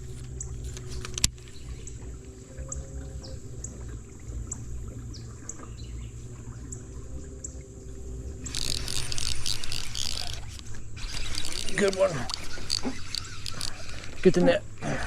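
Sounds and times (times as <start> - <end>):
fish splashing at water surface: 8.4 - 14.3.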